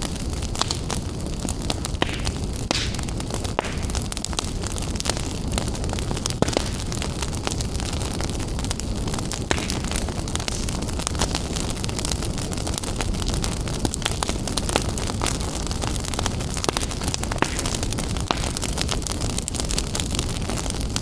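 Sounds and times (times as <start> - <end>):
low rumble of flames: 0.0 - 21.0
wood fire crackling: 0.0 - 21.0.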